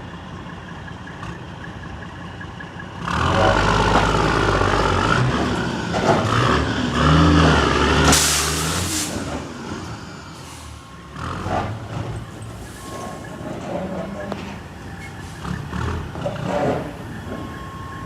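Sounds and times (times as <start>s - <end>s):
heavy truck running: 0.0s - 18.0s
air hiss burst: 8.1s - 9.3s.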